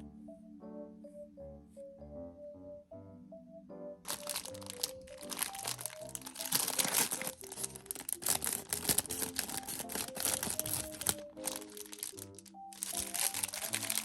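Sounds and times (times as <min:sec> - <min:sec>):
background music: 0:00.0 - 0:14.0
plastic wrapper crinkling: 0:04.1 - 0:14.0.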